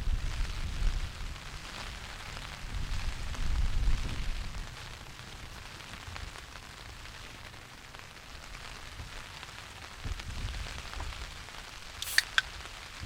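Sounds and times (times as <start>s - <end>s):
rain pattering: 0.0s - 13.0s
sharp clicks: 12.0s - 12.5s.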